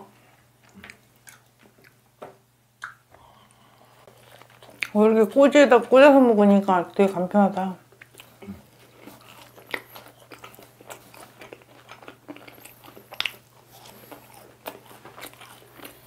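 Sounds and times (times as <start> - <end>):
crunching fried chicken: 8.0 - 16.0.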